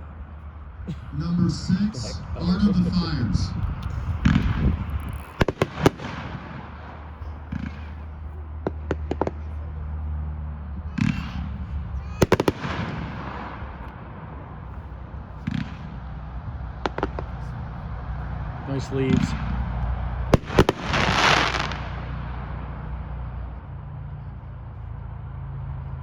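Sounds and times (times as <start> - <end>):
firework bangs: 4.2 - 9.6, 10.8 - 23.4.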